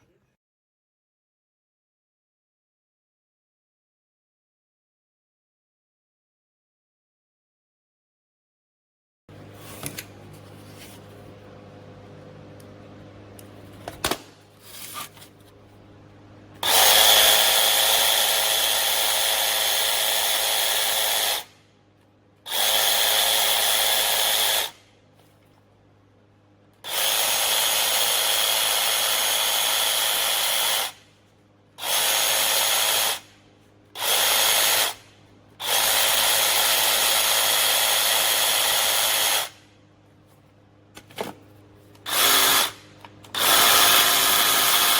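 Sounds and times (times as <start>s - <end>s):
jig saw motor whining: 16.6s - 21.5s, 22.5s - 24.8s, 26.8s - 31.0s, 31.8s - 33.3s, 34.0s - 35.0s, 35.6s - 39.6s, 42.1s - 42.8s, 43.4s - 44.9s.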